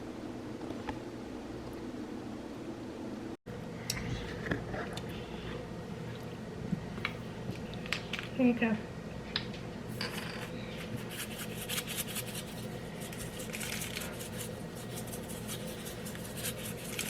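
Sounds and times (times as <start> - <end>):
knife scraping frosting: 11.0 - 17.0.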